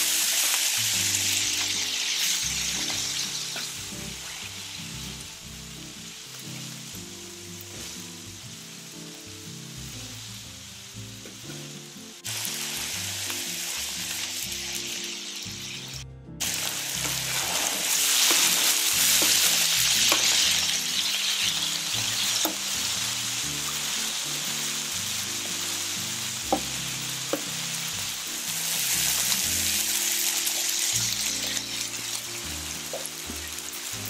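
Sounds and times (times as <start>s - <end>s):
chicken sizzling in oil: 0.0s - 34.0s
utensils scraping a pan: 17.0s - 21.4s.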